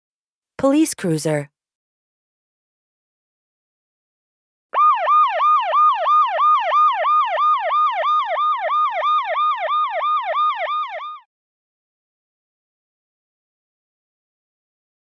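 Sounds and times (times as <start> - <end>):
police siren yelping: 4.8 - 11.3.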